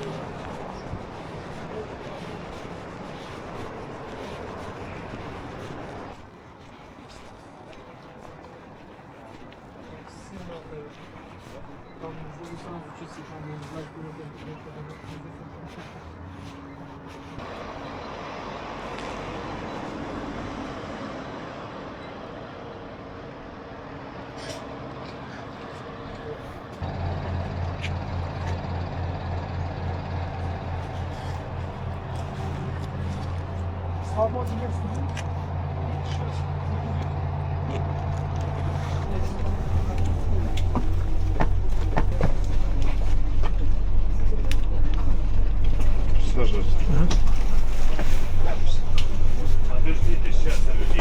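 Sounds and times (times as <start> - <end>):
large vehicle engine running: 0.0 - 6.2, 11.2 - 51.0
road traffic: 0.0 - 51.0.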